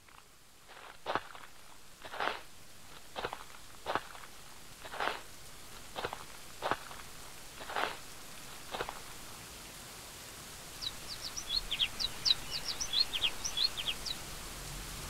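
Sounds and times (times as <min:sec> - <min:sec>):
footsteps: 0:00.0 - 0:09.4
steady hiss: 0:00.0 - 0:15.0
small bird chirping rapidly: 0:03.2 - 0:09.1, 0:10.8 - 0:14.2.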